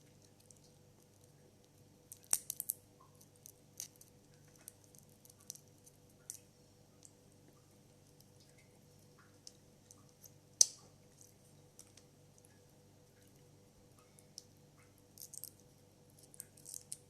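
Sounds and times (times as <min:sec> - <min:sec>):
crab shell cracking: 0:00.2 - 0:07.2, 0:09.2 - 0:12.5, 0:14.2 - 0:17.0.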